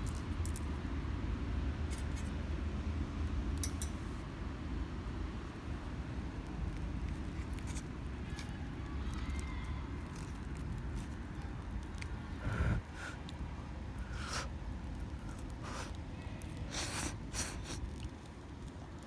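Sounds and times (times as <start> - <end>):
campfire crackling: 0.0 - 19.0
fire popping: 5.0 - 19.0.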